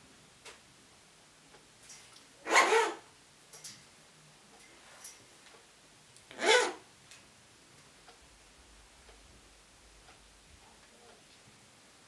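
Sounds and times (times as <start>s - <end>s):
parrot call: 2.4s - 3.1s, 6.3s - 6.8s.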